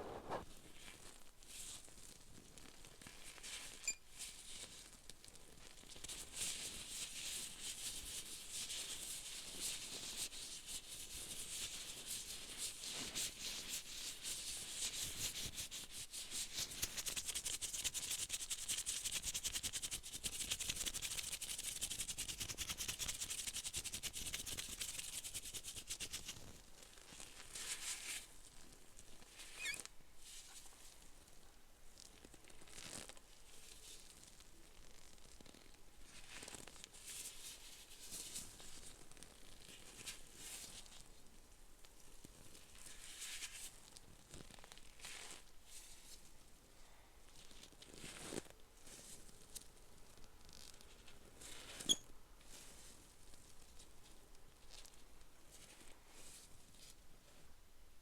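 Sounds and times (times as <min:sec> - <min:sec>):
close scratching and rubbing: 0:00.0 - 0:00.4, 0:13.4 - 0:26.5.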